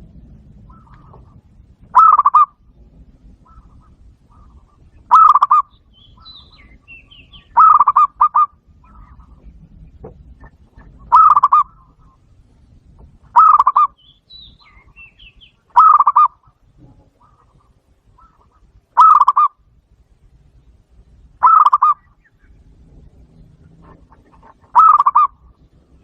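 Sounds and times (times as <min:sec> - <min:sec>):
dove cooing through a speaker: 0:00.0 - 0:12.2, 0:13.3 - 0:14.0, 0:15.7 - 0:19.6, 0:21.4 - 0:22.4, 0:23.6 - 0:26.0.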